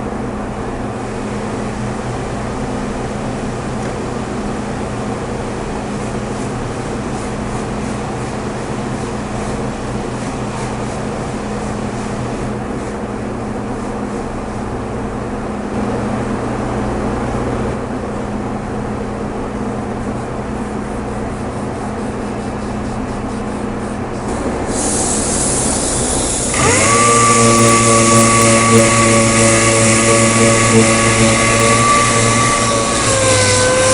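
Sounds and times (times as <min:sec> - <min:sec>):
high-pitched whine: 0:24.7 - 0:33.9
power tool humming: 0:25.0 - 0:33.9.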